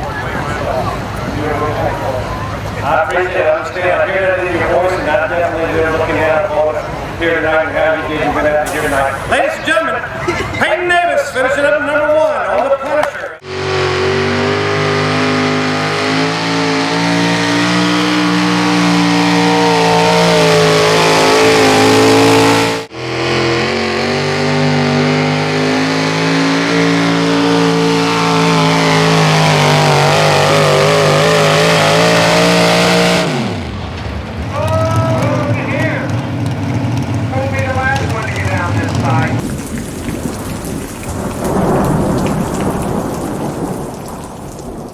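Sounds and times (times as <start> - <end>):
truck engine at high revs: 0.0 - 10.4, 13.4 - 39.8.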